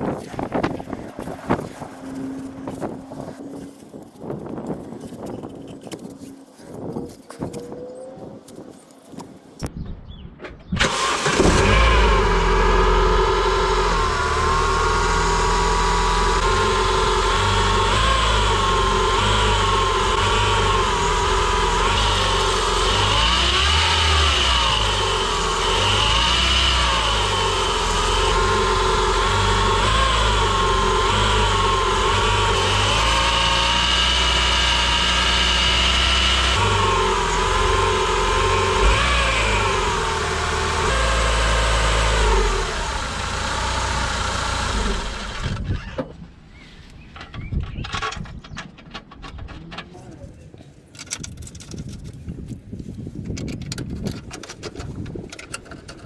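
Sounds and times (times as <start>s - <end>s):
car engine running: 10.9s - 45.6s.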